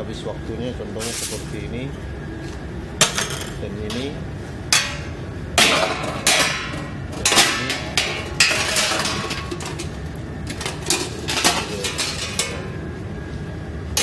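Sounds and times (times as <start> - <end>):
steady low hum: 0.0 - 14.0
dishes clattering: 3.0 - 12.9.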